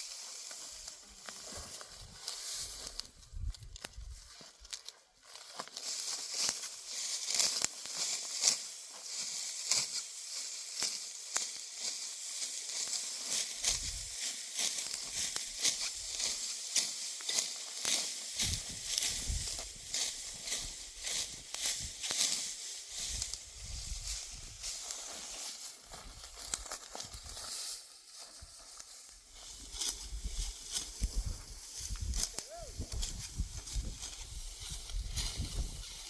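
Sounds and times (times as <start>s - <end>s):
dry wheat stalks rustling: 0.0s - 36.0s.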